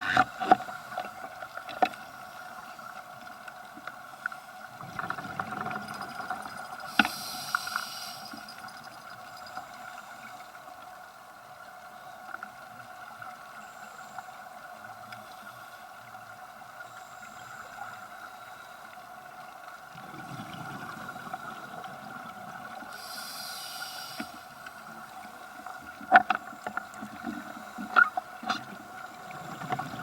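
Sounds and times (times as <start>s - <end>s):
underwater two-toned hum: 0.0s - 30.0s
short hiss: 6.9s - 8.5s, 23.0s - 24.5s.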